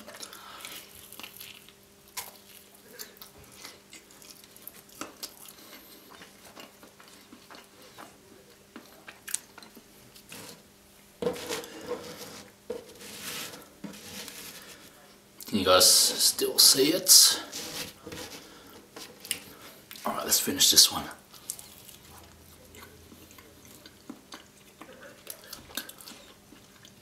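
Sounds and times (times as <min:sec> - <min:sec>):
chewing with crisp crunches: 0:00.0 - 0:10.6, 0:21.3 - 0:27.0
faint steady hum: 0:00.0 - 0:27.0.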